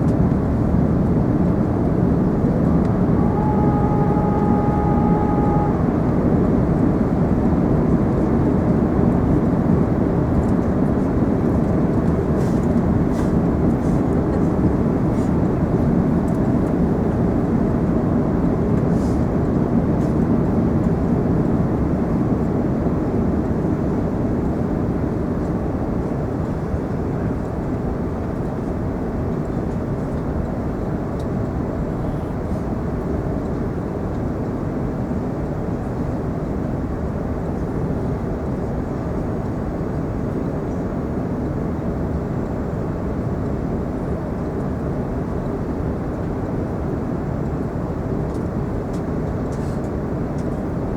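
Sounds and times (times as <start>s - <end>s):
airplane cabin noise: 0.0s - 50.9s.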